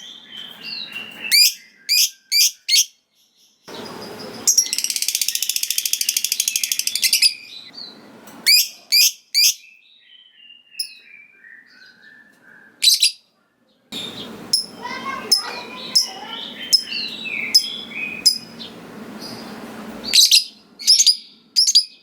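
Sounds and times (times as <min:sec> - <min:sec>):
bird chirps: 0:00.0 - 0:22.0
lovebird chattering trill: 0:03.7 - 0:07.5, 0:14.0 - 0:19.4.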